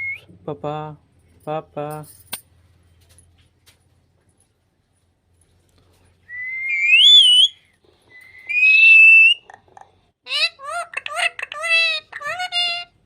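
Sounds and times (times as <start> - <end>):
parrot whistling: 6.3 - 9.4.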